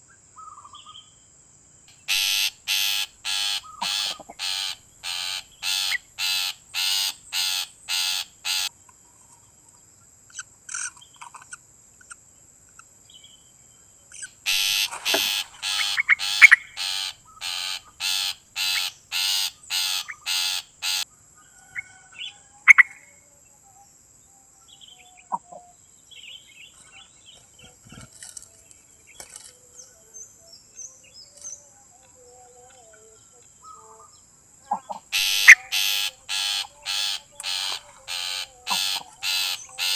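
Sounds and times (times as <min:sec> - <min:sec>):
bird harsh repeated calls: 0:01.9 - 0:08.7, 0:14.2 - 0:21.1, 0:34.7 - 0:39.9
short bird chirps: 0:02.0 - 0:08.7, 0:14.2 - 0:21.0, 0:35.1 - 0:39.9.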